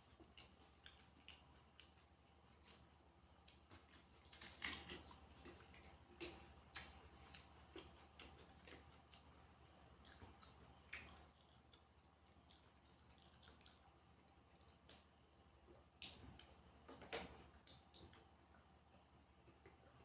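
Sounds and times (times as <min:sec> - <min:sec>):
chewing clicks and crunches: 0:00.0 - 0:15.1, 0:15.7 - 0:18.3
faint steady hum: 0:00.0 - 0:20.0.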